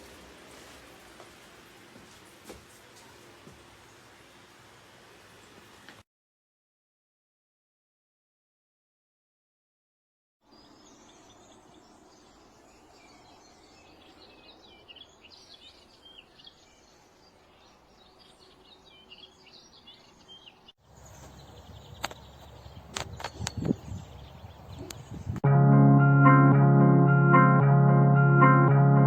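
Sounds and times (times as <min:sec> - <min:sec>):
faint outdoor ambience: 0:00.0 - 0:06.0, 0:10.5 - 0:25.4
small birds chirping: 0:10.5 - 0:25.4.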